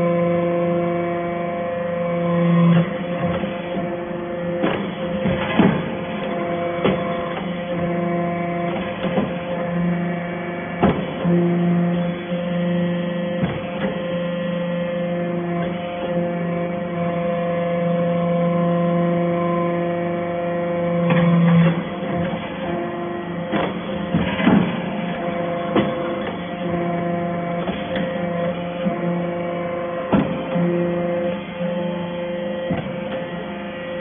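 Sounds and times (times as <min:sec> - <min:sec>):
baler machine hum: 0:00.0 - 0:34.0
sharp knocks: 0:04.6 - 0:06.0, 0:23.5 - 0:25.0, 0:30.1 - 0:30.6.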